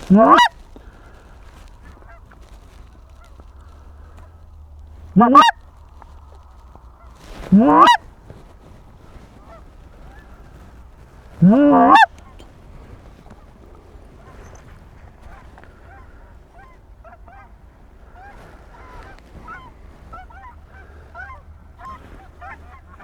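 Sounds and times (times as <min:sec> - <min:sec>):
goose call honks: 0:00.0 - 0:04.3, 0:05.0 - 0:06.1, 0:07.0 - 0:08.3, 0:09.1 - 0:23.0
faint geese honking: 0:00.0 - 0:23.0.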